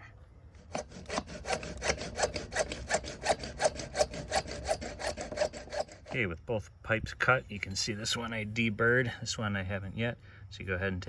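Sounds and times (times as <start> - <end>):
hand saw cutting plastic pipe: 0.6 - 6.2.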